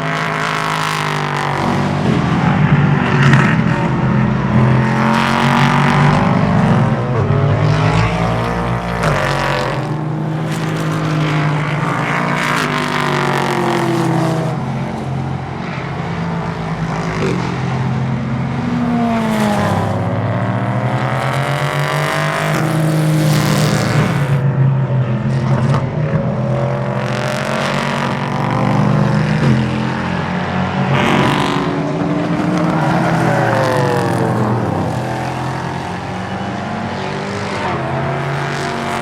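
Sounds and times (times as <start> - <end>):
racing cars passing at speed: 0.0 - 39.0.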